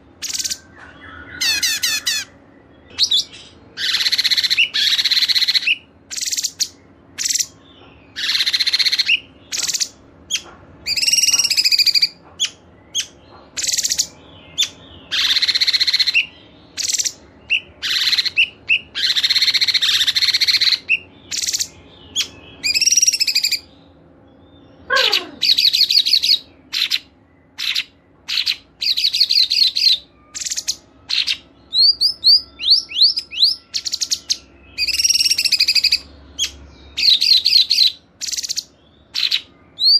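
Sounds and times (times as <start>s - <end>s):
songbirds chattering: 0.0s - 39.9s
sharp bird chips: 0.2s - 23.7s.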